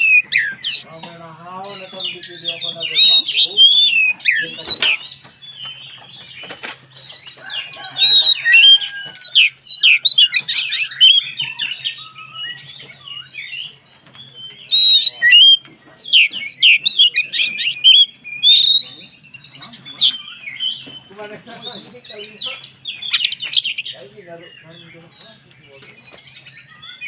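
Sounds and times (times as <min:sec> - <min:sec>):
bird singing whistles and chirps: 0:00.0 - 0:06.6, 0:07.5 - 0:21.1, 0:22.5 - 0:24.0, 0:25.7 - 0:27.0.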